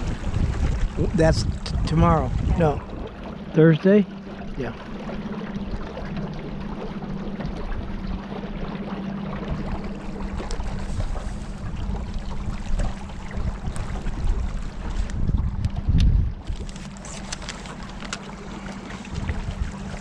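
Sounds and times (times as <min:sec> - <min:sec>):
wind noise: 0:00.0 - 0:03.1, 0:10.4 - 0:18.1, 0:19.0 - 0:20.0
boat motor humming: 0:00.0 - 0:20.0
rushing water: 0:00.0 - 0:20.0.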